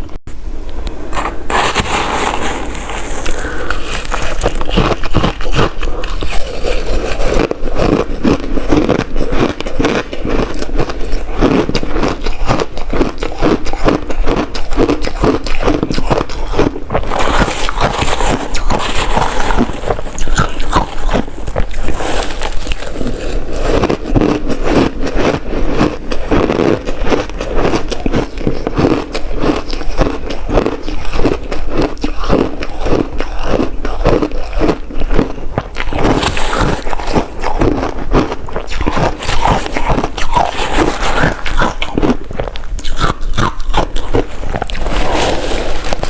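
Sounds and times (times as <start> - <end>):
ice being chewed: 1.2 - 46.0.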